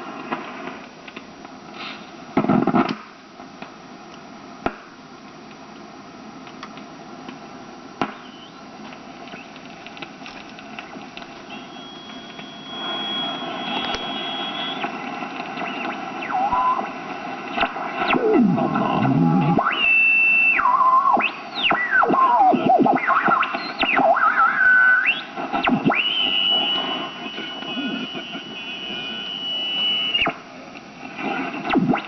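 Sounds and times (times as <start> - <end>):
radio static hiss: 0.0 - 32.0
radio tuning whistles: 8.0 - 9.6, 10.2 - 32.0.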